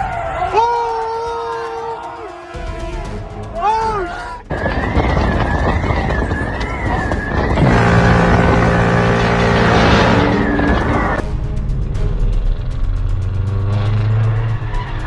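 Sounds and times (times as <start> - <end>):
siren wailing: 0.0 - 11.2
traffic noise: 0.0 - 15.0
loud steady blaring tone: 2.0 - 12.7.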